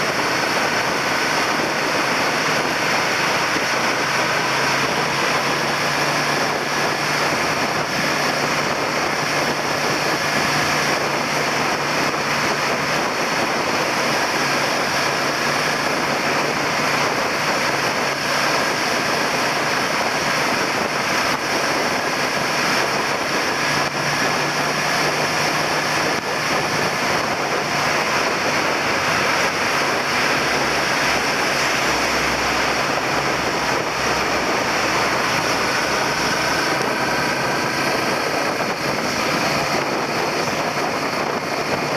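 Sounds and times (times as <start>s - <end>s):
motorcycle engine: 0.0s - 41.9s
road noise: 0.0s - 41.9s
wind rushing: 0.0s - 41.9s.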